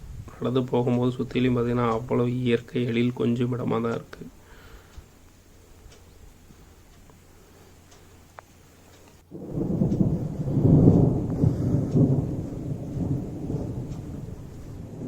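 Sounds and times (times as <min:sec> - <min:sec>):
thunder rumbling: 0:09.3 - 0:15.0.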